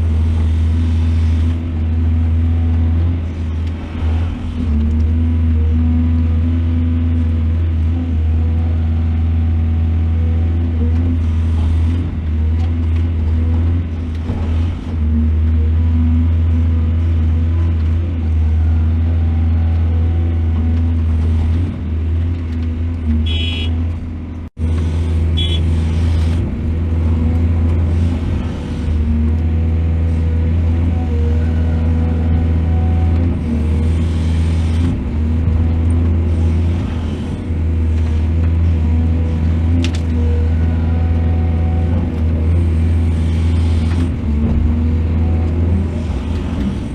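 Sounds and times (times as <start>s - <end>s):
diesel excavator engine running: 0.0s - 46.9s.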